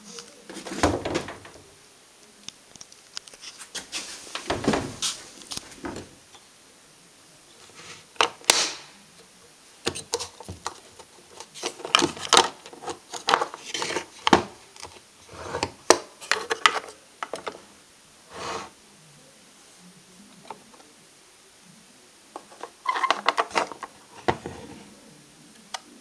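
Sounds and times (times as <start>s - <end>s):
clicks and knocks of small parts: 9.8s - 15.0s, 22.4s - 24.4s.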